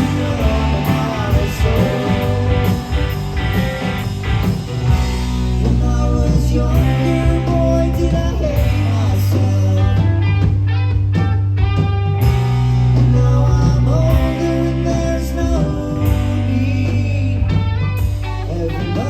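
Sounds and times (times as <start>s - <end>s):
person singing: 0.0s - 3.2s
bass guitar: 0.0s - 19.0s
drums: 0.0s - 19.0s
electric guitars: 0.0s - 19.0s.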